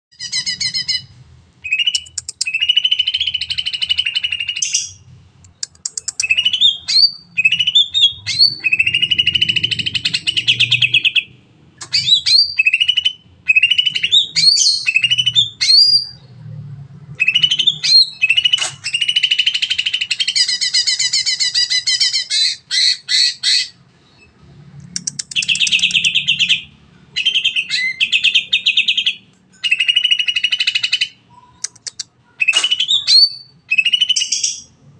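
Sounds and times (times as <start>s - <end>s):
bird singing rapid trills: 5.6s - 16.2s, 25.0s - 34.7s.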